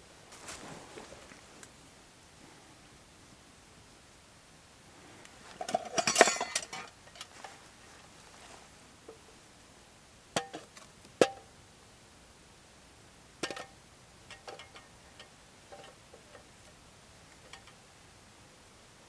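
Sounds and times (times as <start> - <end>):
metal utensils clinking on cookware: 5.6 - 7.3.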